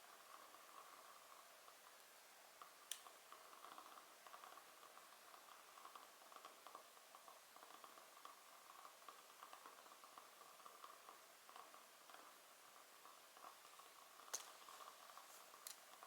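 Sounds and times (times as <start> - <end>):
wood fire crackling: 0.1 - 16.0.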